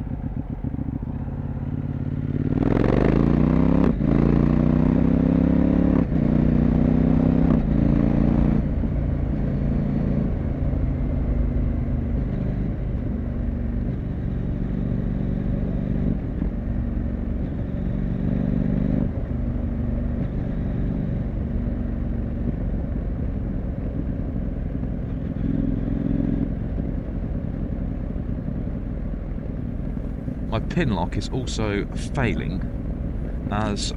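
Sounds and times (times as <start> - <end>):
motorcycle engine and exhaust: 0.0 - 33.9
low wind rumble: 26.5 - 33.9.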